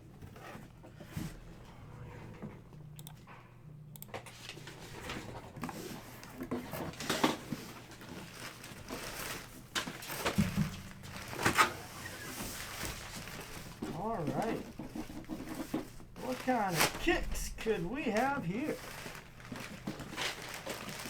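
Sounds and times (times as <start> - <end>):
card packaging crinkling: 7.9 - 21.0.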